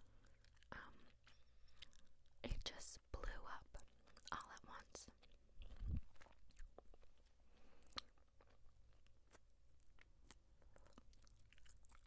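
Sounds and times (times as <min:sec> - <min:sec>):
gum chewing mouth clicks: 0:05.1 - 0:12.0.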